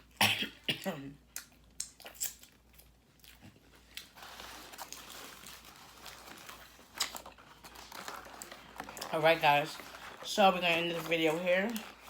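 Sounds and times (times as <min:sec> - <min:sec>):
chewing and crunching food: 0:01.2 - 0:12.0
soft rustling: 0:03.7 - 0:12.0.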